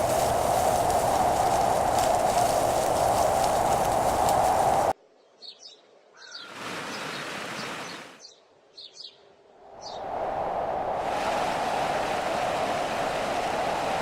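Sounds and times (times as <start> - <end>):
loud rushing noise: 0.0 - 4.9, 10.0 - 14.0
soft rushing noise: 0.0 - 5.0, 9.6 - 14.0
small birds chirping: 0.0 - 9.2.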